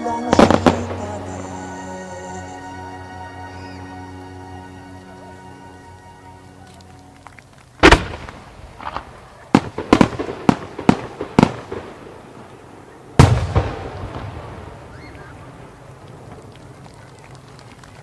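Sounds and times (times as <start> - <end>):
firework shells bursting: 0.0 - 1.8, 7.8 - 16.8.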